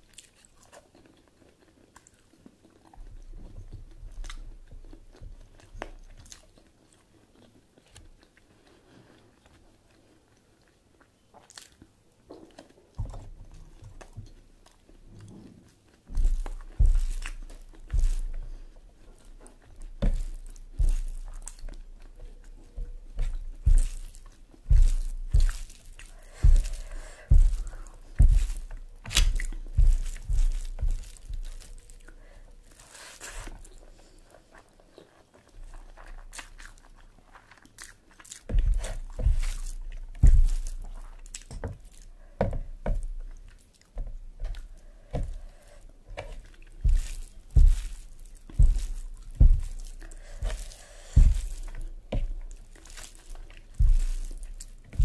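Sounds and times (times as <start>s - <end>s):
person chewing and biting: 0.0s - 42.2s, 42.8s - 55.0s.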